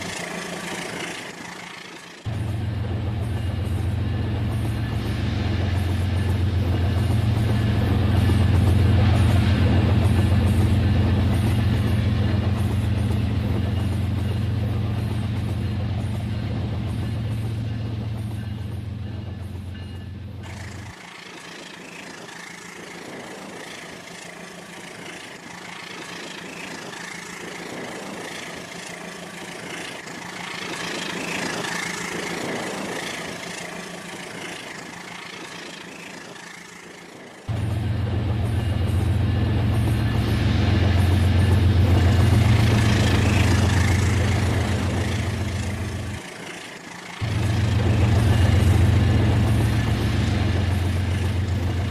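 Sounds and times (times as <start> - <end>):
hissy train running sound: 0.0 - 51.9
model train motor hum: 20.4 - 51.9.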